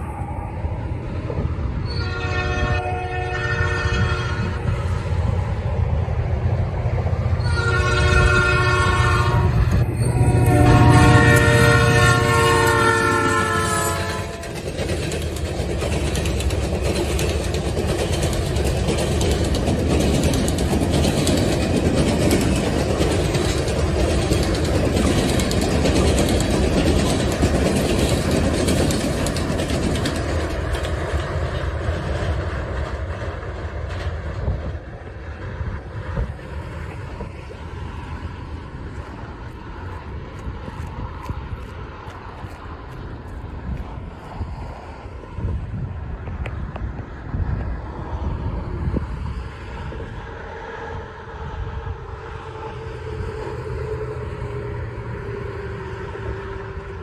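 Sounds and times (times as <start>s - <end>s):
train cars rolling over bridge: 0.0s - 57.0s
locomotive air horn: 1.8s - 4.7s, 7.4s - 14.5s
wheels clicking over rail joints: 9.6s - 45.5s.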